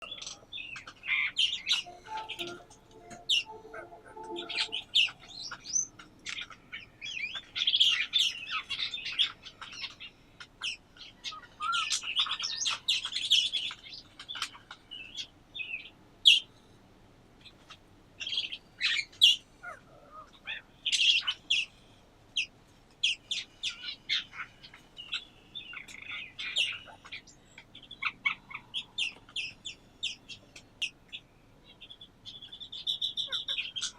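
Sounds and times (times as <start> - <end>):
lower repeated bird call: 0.0 - 10.0
small birds chirping and twittering: 0.0 - 33.9.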